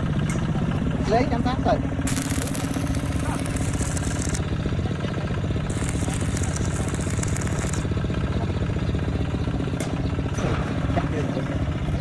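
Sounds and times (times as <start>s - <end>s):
small engine running: 0.9s - 12.0s
high hiss: 2.1s - 4.4s.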